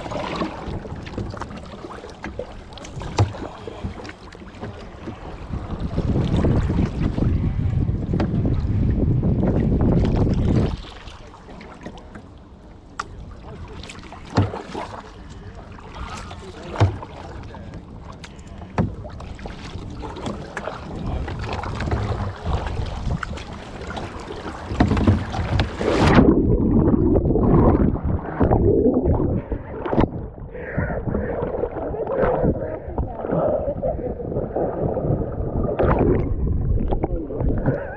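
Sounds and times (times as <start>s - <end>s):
paddle knocking against hull: 0.0s - 26.3s
muffled churning water: 0.0s - 37.9s
water sloshing: 0.0s - 37.9s.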